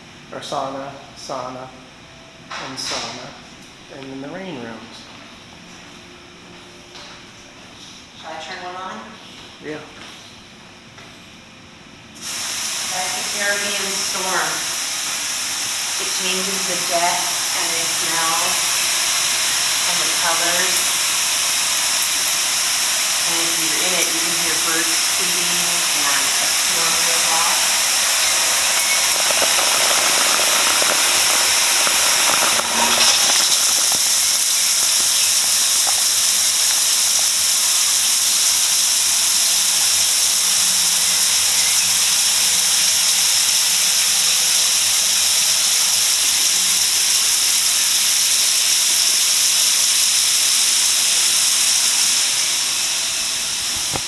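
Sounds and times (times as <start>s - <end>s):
shower spraying water: 12.2s - 54.0s.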